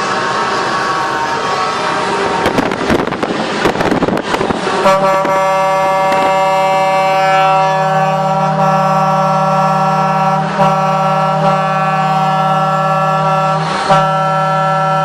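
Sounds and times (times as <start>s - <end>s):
rough crackling vehicle noise: 1.5s - 7.8s
truck air horn blast: 4.7s - 15.0s.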